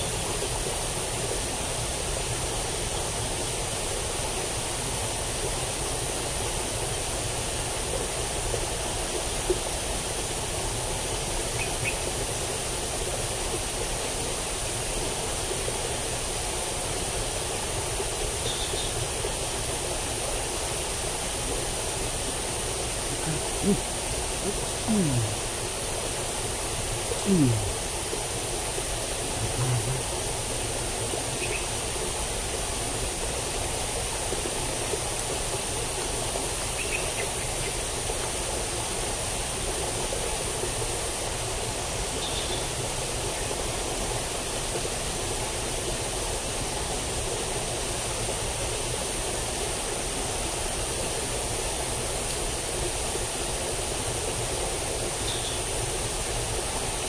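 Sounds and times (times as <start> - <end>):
water rushing in ditch: 0.0 - 57.0
high-pitched hiss: 20.4 - 31.9
faint chirps: 23.1 - 25.5, 27.2 - 27.8, 29.4 - 30.1.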